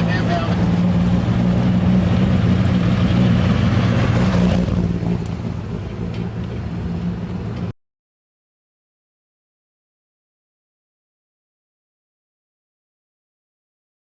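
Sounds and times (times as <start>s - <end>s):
engine running under load: 0.0s - 7.7s.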